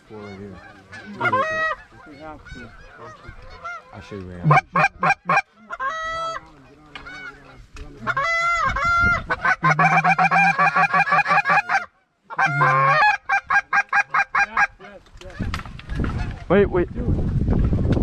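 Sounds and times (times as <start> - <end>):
goose honking: 0.0 - 15.0.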